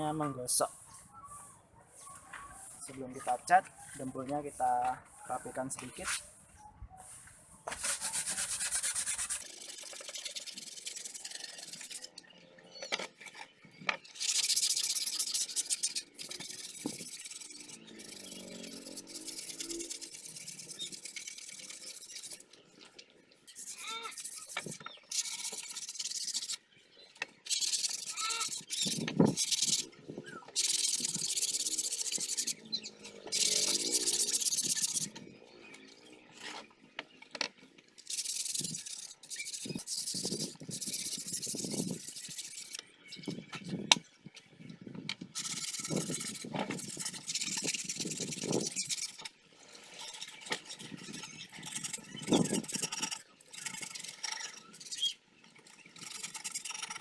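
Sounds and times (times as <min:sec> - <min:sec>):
sandpaper rasping on putty: 0:07.7 - 0:12.2, 0:14.2 - 0:22.4, 0:23.4 - 0:26.7, 0:27.5 - 0:29.9, 0:30.6 - 0:32.6, 0:33.3 - 0:35.2, 0:38.0 - 0:42.8, 0:45.4 - 0:57.0.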